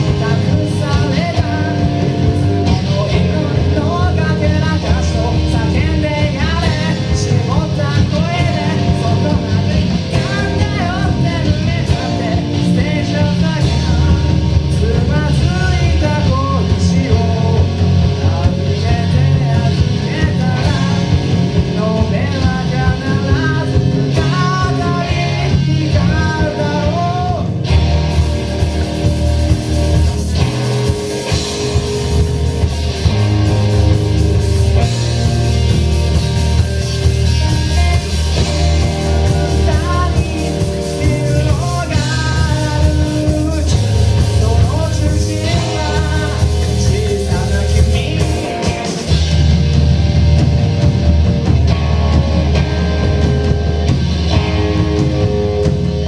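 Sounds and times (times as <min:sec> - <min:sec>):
person singing: 0:00.0 - 0:28.7, 0:37.0 - 0:49.4
rock band playing live: 0:00.0 - 0:56.0.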